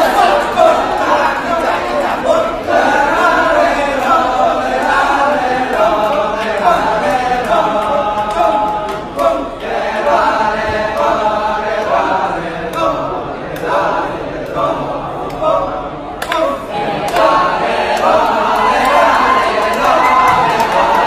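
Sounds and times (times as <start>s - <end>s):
chorus of voices chanting: 0.0s - 21.0s.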